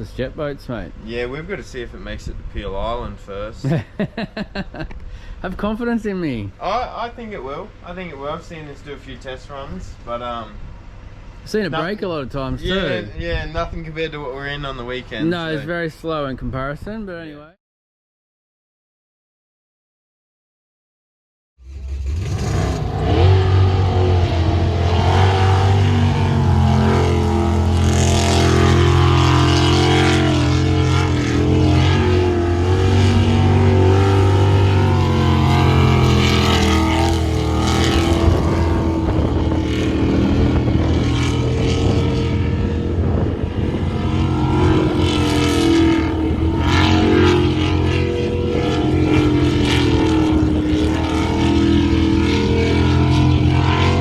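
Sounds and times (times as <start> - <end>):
boat engine running hard: 11.0 - 13.7, 21.9 - 54.0.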